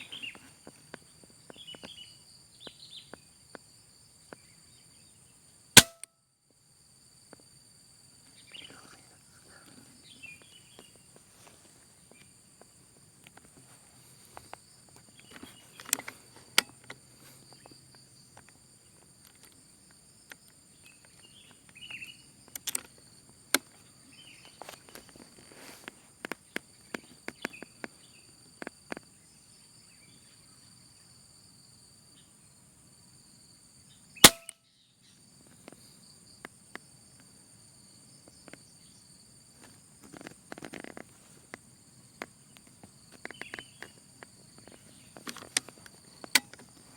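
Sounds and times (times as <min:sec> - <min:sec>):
sharp gunshot: 0:05.8 - 0:06.0, 0:34.2 - 0:34.5
clicks and rustling from movement: 0:13.2 - 0:17.7, 0:39.6 - 0:41.6, 0:42.2 - 0:46.9.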